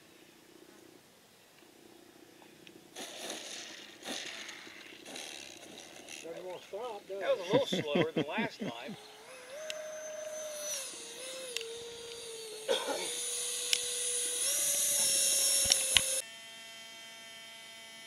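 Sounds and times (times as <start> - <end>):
faint steady hum: 0.0 - 18.0
model airplane motor whining: 3.0 - 7.3, 8.8 - 18.0.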